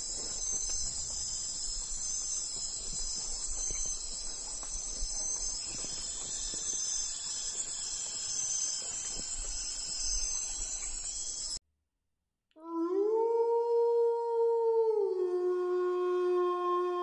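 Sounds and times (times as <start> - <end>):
high-pitched insect chorus: 0.0 - 11.6.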